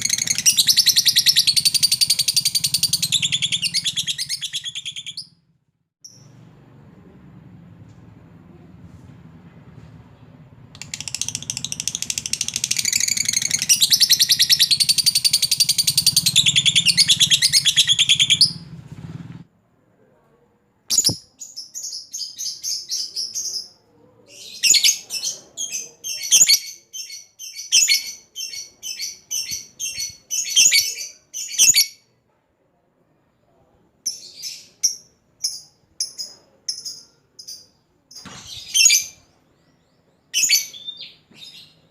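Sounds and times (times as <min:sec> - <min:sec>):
lovebird chattering trill: 0:00.0 - 0:05.3
lovebird sharp chirps: 0:00.0 - 0:05.4, 0:10.8 - 0:18.6, 0:20.9 - 0:23.8.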